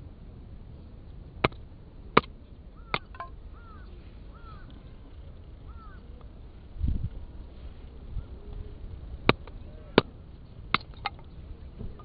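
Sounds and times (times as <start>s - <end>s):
small bird chirping: 2.8s - 6.2s.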